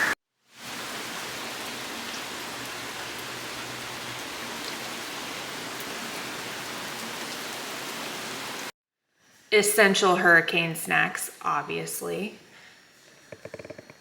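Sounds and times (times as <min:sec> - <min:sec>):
heavy rain pouring: 0:00.0 - 0:08.7.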